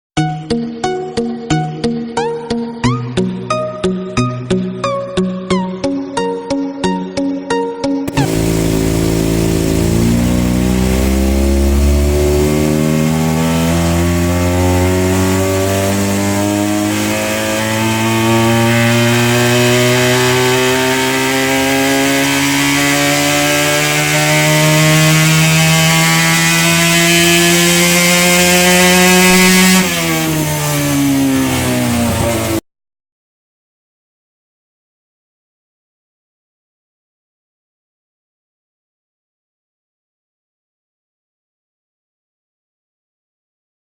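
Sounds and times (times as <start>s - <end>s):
music: 0.2s - 13.4s
motorcycle engine revving: 8.1s - 32.6s.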